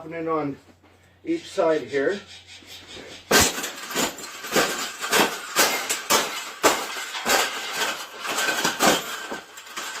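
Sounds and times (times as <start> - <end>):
metal cage knocking and crunching: 3.2 - 10.0.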